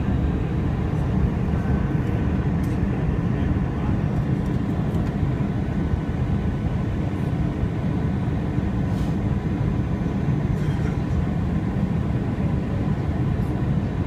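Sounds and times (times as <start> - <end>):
airplane cabin engine rumble: 0.0 - 14.0.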